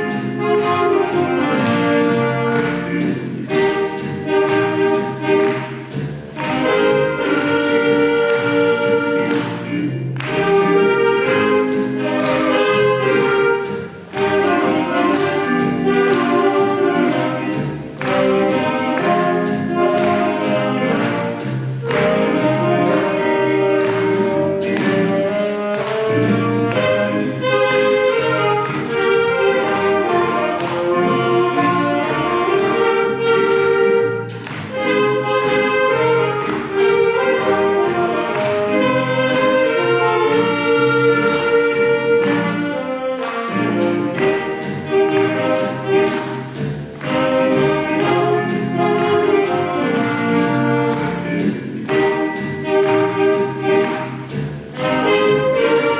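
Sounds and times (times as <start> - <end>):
accompaniment with steady beat: 0.0 - 55.9
saxophone ensemble playing: 0.0 - 55.9.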